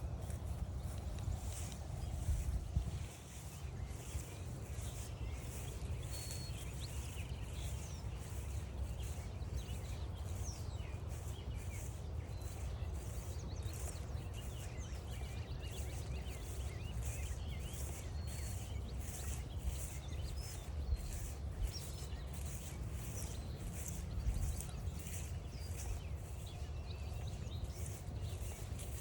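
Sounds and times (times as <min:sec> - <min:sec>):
footsteps crunching on trail: 0:00.0 - 0:29.0
small birds chirping and singing: 0:00.0 - 0:29.0.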